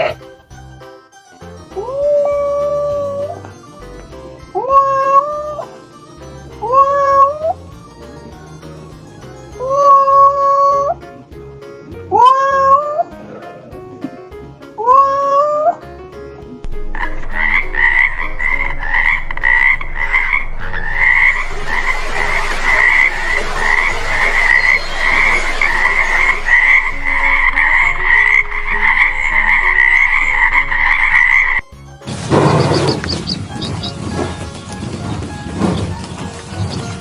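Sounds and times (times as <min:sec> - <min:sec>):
loud noisy rushing: 0:16.8 - 0:37.0
frog croaking: 0:16.9 - 0:31.6.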